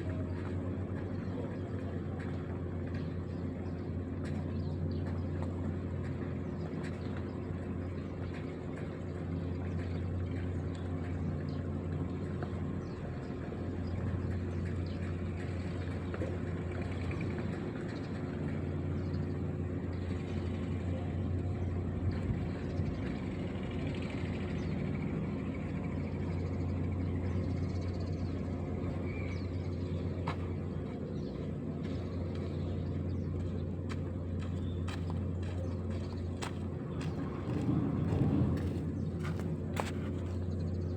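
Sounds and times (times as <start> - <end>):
diesel engine running steadily: 0.0 - 40.9.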